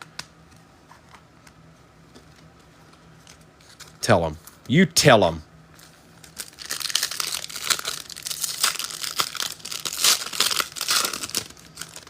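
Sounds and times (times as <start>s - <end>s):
card pack wrapper crinkling and tearing: 5.8s - 12.0s.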